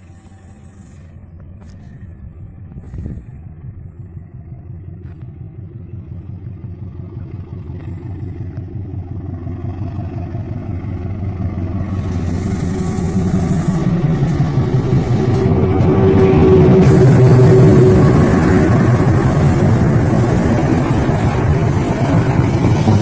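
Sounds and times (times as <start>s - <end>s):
locomotive engine rumble: 0.0s - 23.0s
rattle and hiss: 10.8s - 23.0s.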